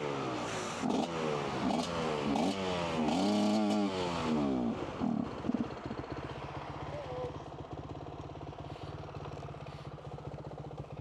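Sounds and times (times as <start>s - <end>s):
dirt bike engine revving: 0.8s - 4.4s.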